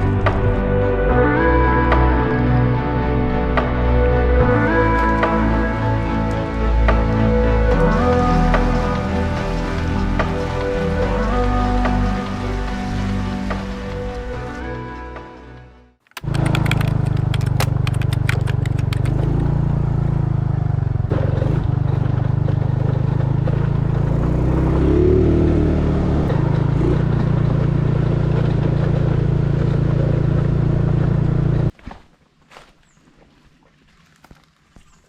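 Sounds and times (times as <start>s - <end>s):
engine running: 0.0s - 31.7s
sharp clattering clicks: 16.0s - 19.5s.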